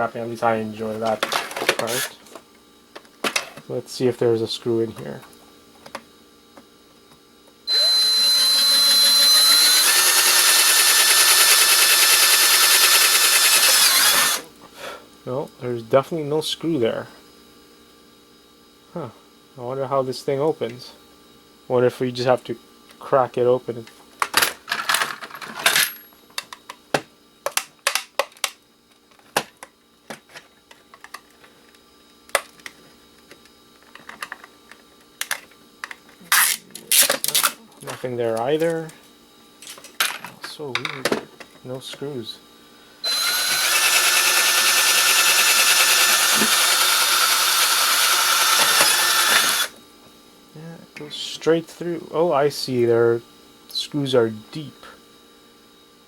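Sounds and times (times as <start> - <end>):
electric drill boring into plastic: 1.8 - 2.1, 7.7 - 14.5, 43.0 - 49.8.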